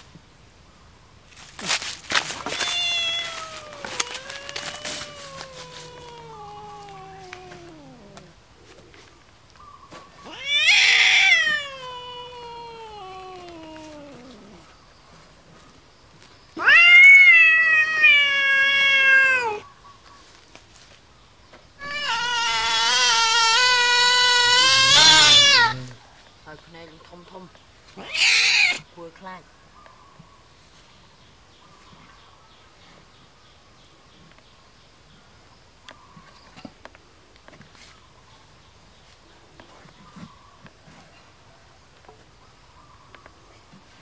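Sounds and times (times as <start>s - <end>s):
kitten meowing: 2.5s - 8.3s, 10.3s - 14.6s, 16.6s - 19.6s, 21.8s - 25.9s, 28.0s - 28.8s.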